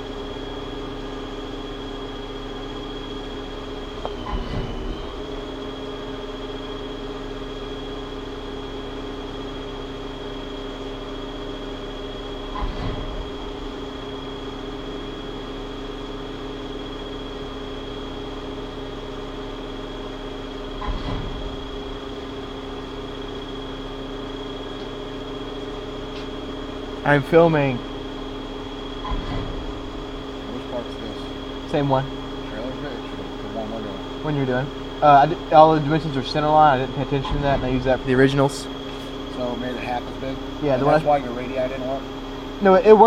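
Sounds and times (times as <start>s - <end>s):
metal lathe humming and whining: 0.0s - 43.0s.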